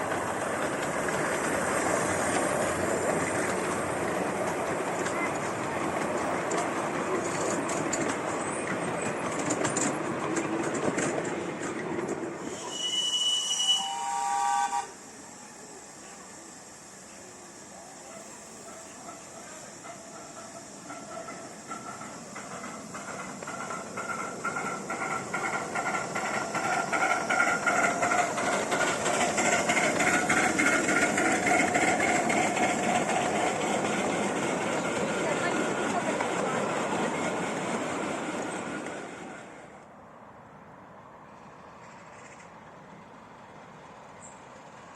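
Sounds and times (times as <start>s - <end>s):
rail clatter: 0.0s - 13.4s, 18.0s - 39.7s
steam train passing: 0.0s - 44.9s
shrill train whistle: 12.4s - 16.4s.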